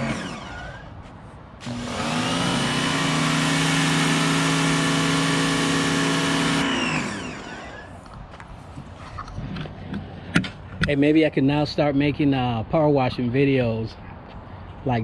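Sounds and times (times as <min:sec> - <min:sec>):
pressure washer motor whining: 0:00.0 - 0:08.1.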